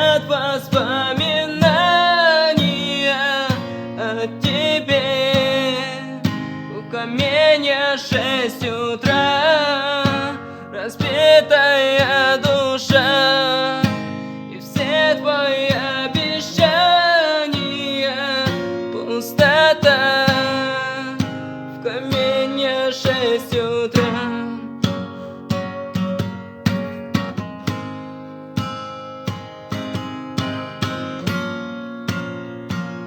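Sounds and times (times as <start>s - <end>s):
person singing with vibrato: 0.0s - 25.4s
strummed acoustic guitar: 0.0s - 33.0s.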